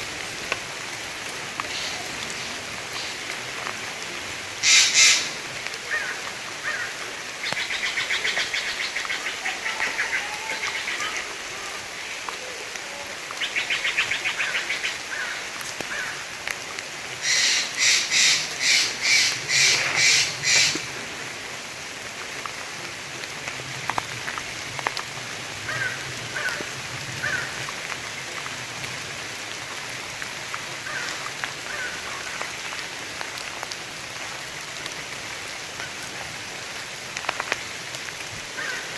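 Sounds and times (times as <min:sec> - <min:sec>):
rain falling in forest: 0:00.0 - 0:38.9
bird fast rattling call: 0:04.6 - 0:05.3
bird harsh calls: 0:04.6 - 0:11.5, 0:17.2 - 0:20.8.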